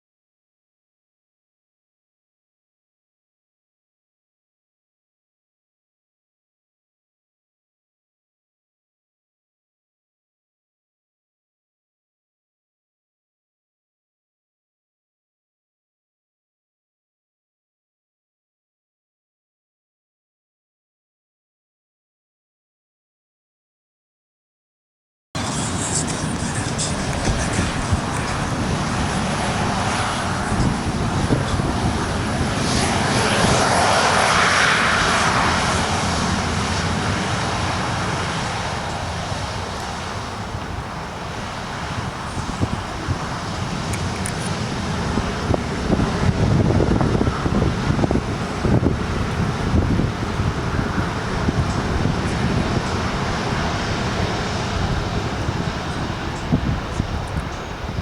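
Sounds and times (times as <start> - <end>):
jet airliner passing: 25.4 - 58.0
wind buffeting microphone: 25.4 - 58.0.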